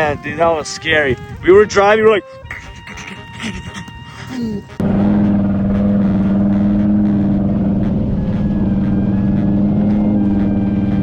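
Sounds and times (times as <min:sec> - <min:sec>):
car engine running at constant revs: 0:04.8 - 0:11.0.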